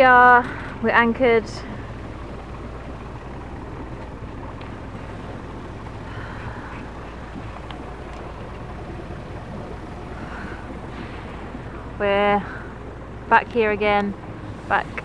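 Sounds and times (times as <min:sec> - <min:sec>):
low rumble: 0:00.0 - 0:15.0
wind noise: 0:07.4 - 0:15.0.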